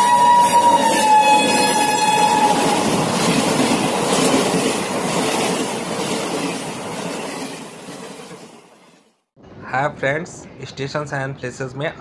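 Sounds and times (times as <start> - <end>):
train horn: 0.0 - 2.9
train coaches rumbling past: 0.0 - 10.0.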